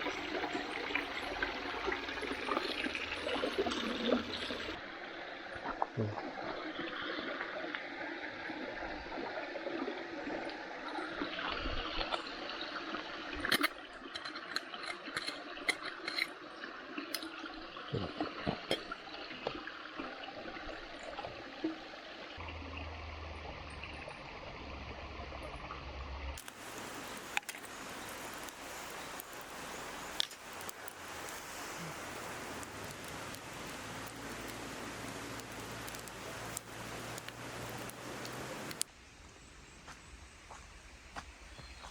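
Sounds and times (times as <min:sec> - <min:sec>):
water trickling in a stream: 0:00.0 - 0:41.9
bright even hiss: 0:26.4 - 0:41.8.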